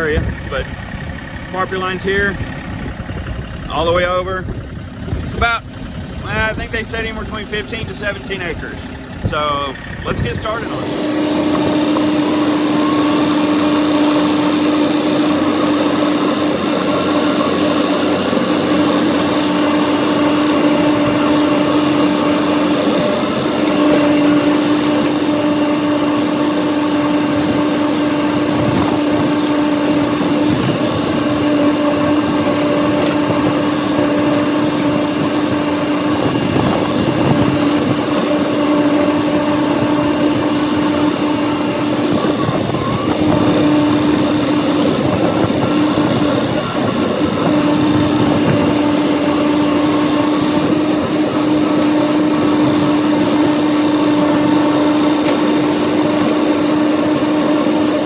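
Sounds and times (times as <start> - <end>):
tractor engine drone: 0.0 - 58.0
rotary cutter: 6.2 - 58.0.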